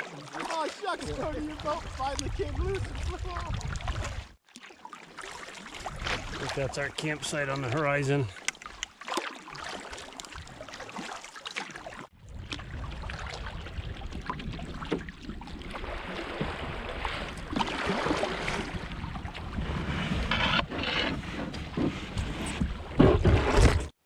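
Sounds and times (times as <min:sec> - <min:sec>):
paddle splashing in water: 0:00.0 - 0:24.0
wind on microphone: 0:01.1 - 0:04.4, 0:12.2 - 0:15.8.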